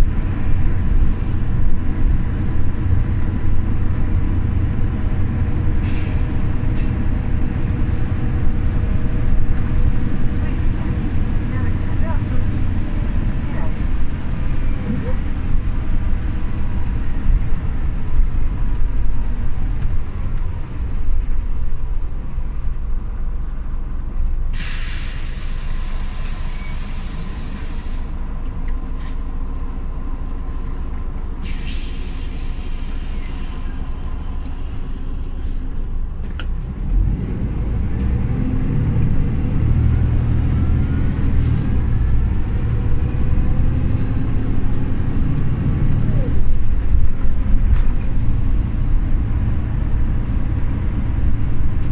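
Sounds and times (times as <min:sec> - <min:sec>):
bus engine: 0:00.0 - 0:51.9
compressed air hissing: 0:24.6 - 0:28.2, 0:31.4 - 0:33.4.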